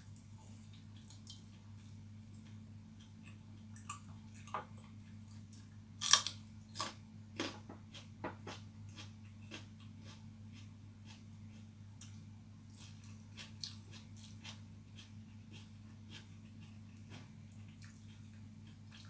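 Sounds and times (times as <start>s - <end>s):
chewing crunches: 5.2s - 19.0s.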